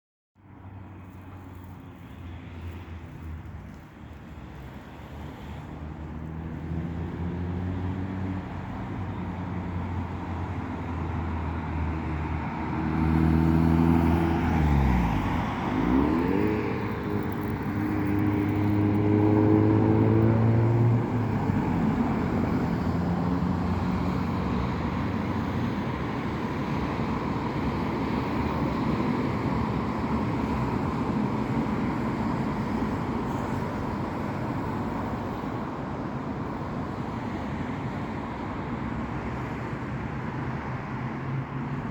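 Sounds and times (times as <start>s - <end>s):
road noise: 0.4s - 41.9s.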